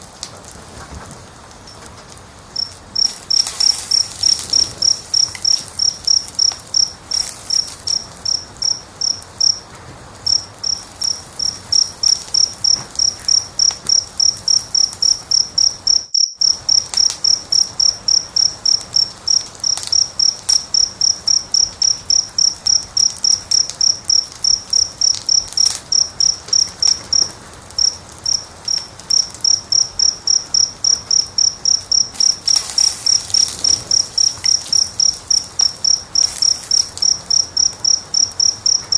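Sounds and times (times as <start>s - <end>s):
fire crackling: 0.0s - 38.9s
cricket chirping: 1.0s - 38.9s.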